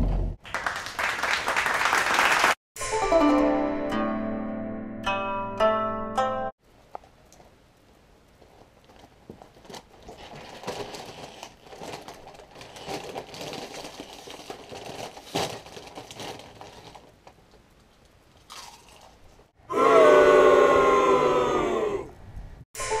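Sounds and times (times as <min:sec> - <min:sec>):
plastic bag crinkling: 0:08.4 - 0:19.3.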